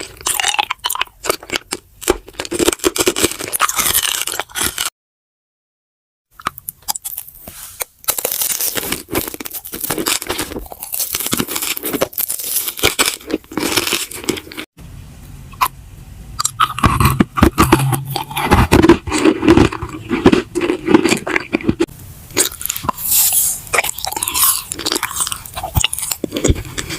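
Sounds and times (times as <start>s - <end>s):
crunching and chewing food: 0.0s - 4.9s, 6.4s - 14.7s, 16.4s - 26.9s.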